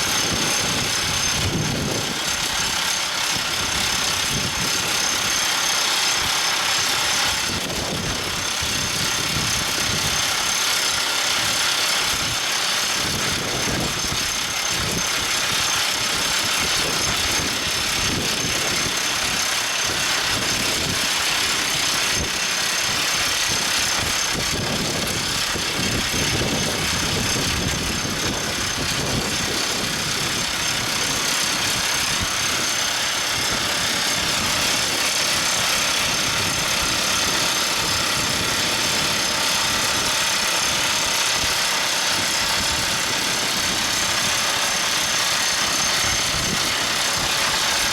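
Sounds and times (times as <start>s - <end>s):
drill rig engine: 0.0s - 47.9s
mechanical rattle: 0.0s - 47.9s.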